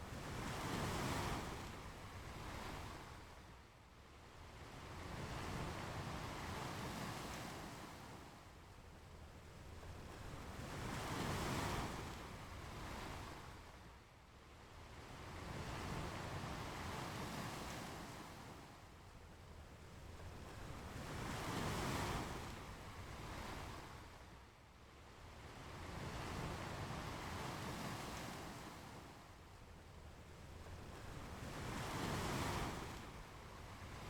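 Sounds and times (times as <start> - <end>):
ocean waves breaking on beach: 30.8 - 34.0.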